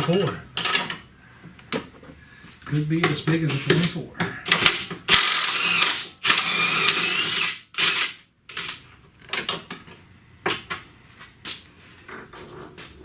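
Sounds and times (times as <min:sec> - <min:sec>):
power tool motor whine: 0:05.1 - 0:08.1.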